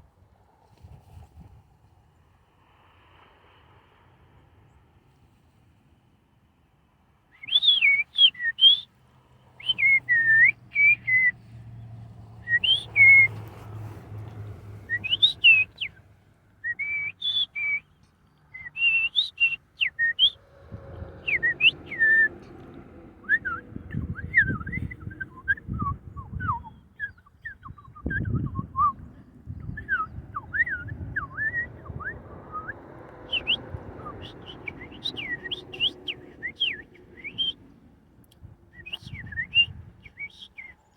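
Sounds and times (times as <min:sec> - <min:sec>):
birds chirping and whistling: 0:12.5 - 0:13.4, 0:14.9 - 0:15.9, 0:18.6 - 0:32.7, 0:33.3 - 0:37.6
low rumbling noise: 0:20.2 - 0:27.0.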